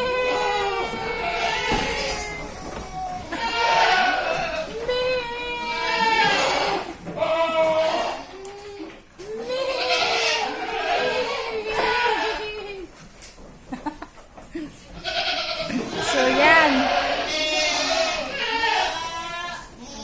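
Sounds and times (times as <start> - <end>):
goats bleating: 0.0 - 12.9, 15.0 - 20.0.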